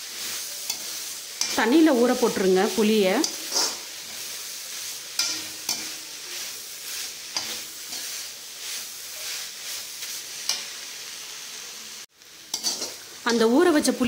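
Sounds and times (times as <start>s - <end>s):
leaves frying in oil: 0.0s - 14.0s
metal spatula scraping pan: 0.2s - 10.8s, 12.5s - 13.4s.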